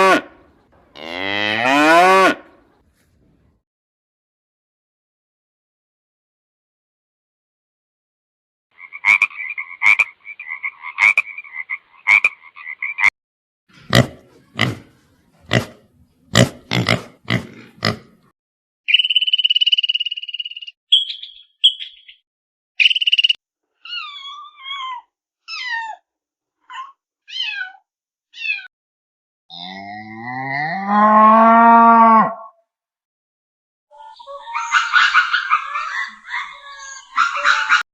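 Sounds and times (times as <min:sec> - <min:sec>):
high whistled calls: 0:18.9 - 0:22.2, 0:22.8 - 0:23.4.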